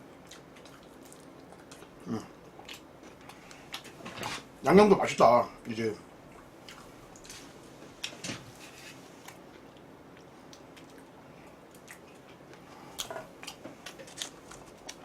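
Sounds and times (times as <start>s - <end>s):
person chewing with mouth clicks: 0.1s - 4.0s, 9.3s - 15.0s.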